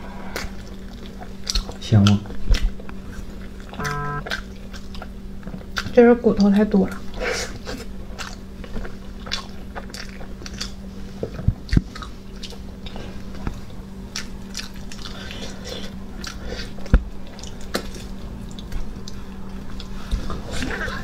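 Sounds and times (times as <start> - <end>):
faint steady hum: 2.8 - 4.4
wet biting and chewing: 8.2 - 10.8.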